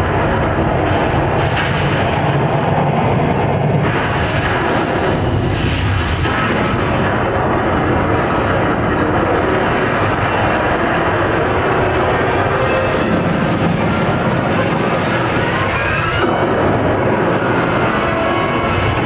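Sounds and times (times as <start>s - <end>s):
rumbling roar over speakers: 0.0s - 19.0s
hissing rushes: 2.4s - 19.0s.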